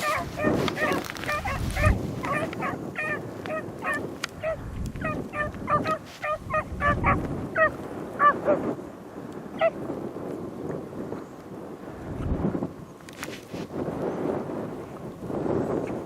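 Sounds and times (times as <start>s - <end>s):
dogs yelping: 0.0s - 8.6s
wind rumble on microphone: 0.0s - 16.0s.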